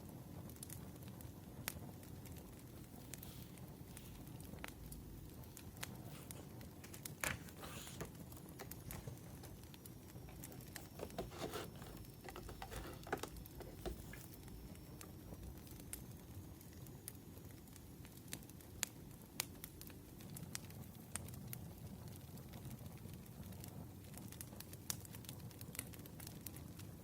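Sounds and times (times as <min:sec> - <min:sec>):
wood fire crackling faintly: 0:00.0 - 0:27.0.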